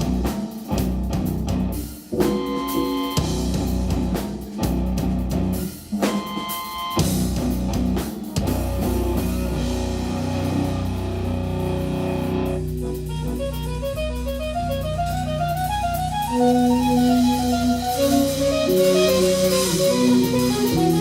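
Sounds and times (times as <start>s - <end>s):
jazz-rock band playing: 0.0s - 21.0s
high single-note guitar run: 2.1s - 4.1s, 8.4s - 21.0s.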